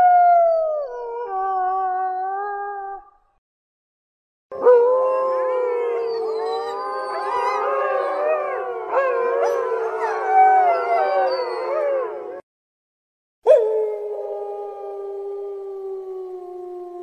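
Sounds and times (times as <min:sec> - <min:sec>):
wolf pack howling: 0:04.6 - 0:12.4.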